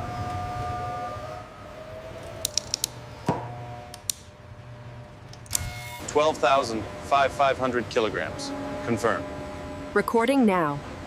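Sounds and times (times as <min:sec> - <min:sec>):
machinery whine: 0:00.0 - 0:11.0
sharp metallic clicks: 0:02.4 - 0:03.0.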